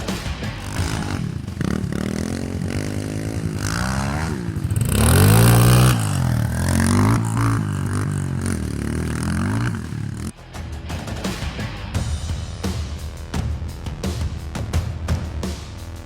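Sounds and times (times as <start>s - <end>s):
dirt bike engine revving: 0.0s - 10.4s.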